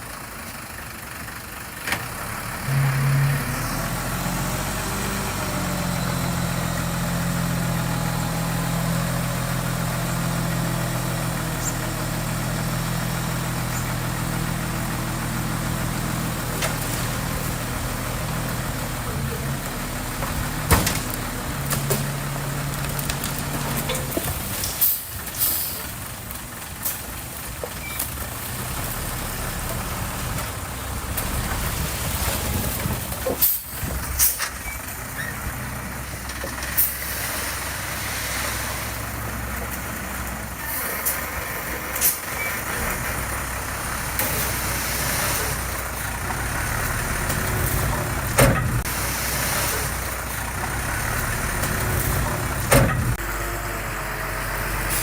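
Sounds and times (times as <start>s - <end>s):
diesel machinery engine running: 0.0s - 55.0s
sharp clanks or hisses: 23.9s - 25.9s, 33.2s - 34.8s.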